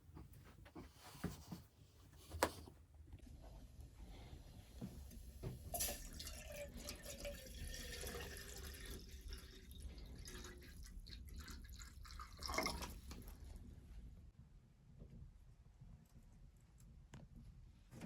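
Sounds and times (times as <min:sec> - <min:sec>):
water pouring into container: 0:05.7 - 0:13.6.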